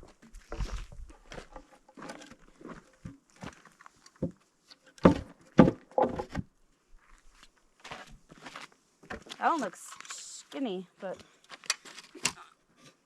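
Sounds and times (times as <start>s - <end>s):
wooden boards knocking together: 5.0s - 6.5s.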